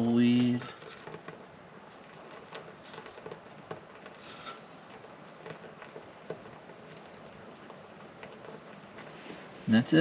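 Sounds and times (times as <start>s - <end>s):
kindling crackling in wood stove: 0.0s - 10.0s.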